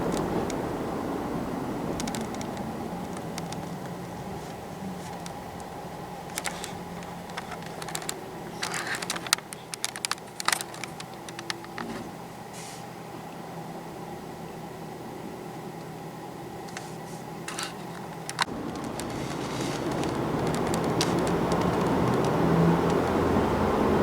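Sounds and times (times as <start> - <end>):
mechanical hum: 0.0 - 24.0
light clicks and taps: 1.9 - 12.1, 16.6 - 23.5.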